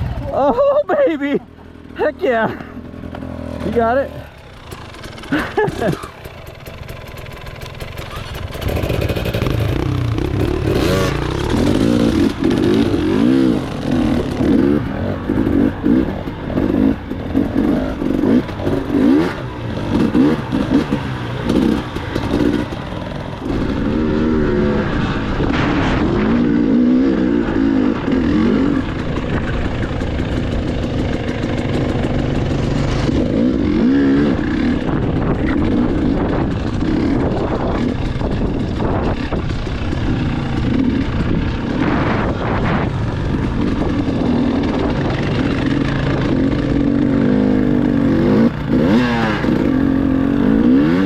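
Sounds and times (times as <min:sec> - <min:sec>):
dirt bike engine revving: 0:00.0 - 0:51.0.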